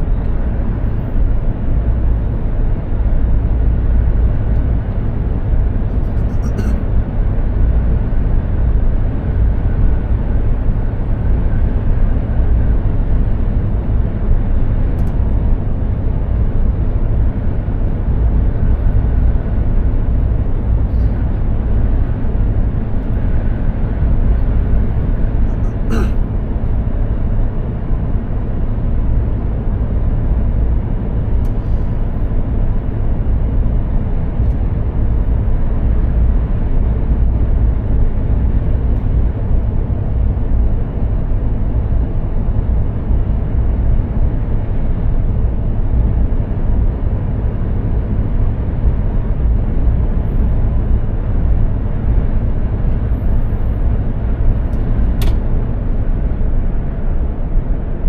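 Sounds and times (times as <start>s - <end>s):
truck engine and road noise: 0.0s - 58.0s
brief click: 54.7s - 55.4s.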